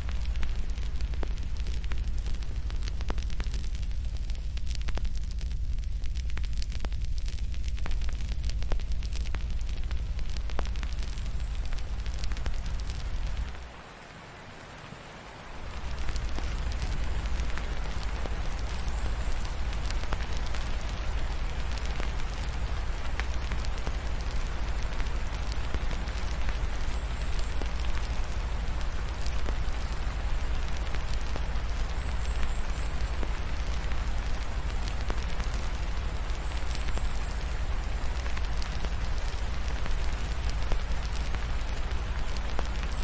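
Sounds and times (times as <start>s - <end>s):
low rumble: 0.0s - 13.6s
fireplace fire crackling: 0.0s - 43.0s
rain hissing: 0.0s - 43.0s.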